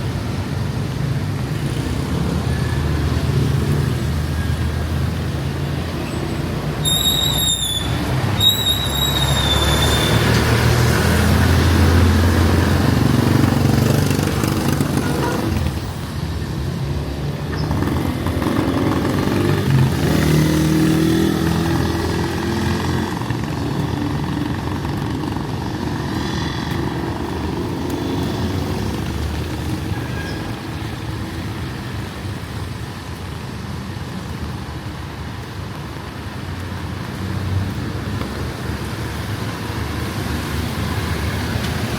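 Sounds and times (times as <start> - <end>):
traffic and rain hiss: 0.0 - 41.9
high-pitched squeal: 6.1 - 10.4.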